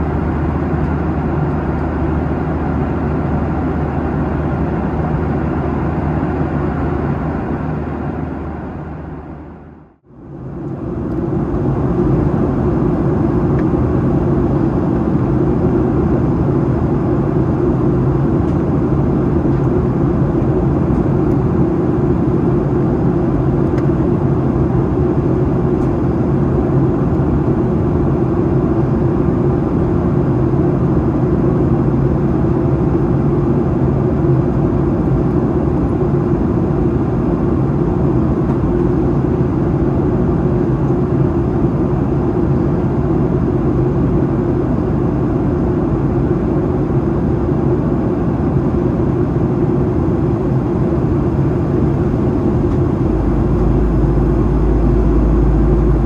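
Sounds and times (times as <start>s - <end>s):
jet engines droning: 0.0s - 56.0s
air rushing over fuselage: 50.8s - 56.0s.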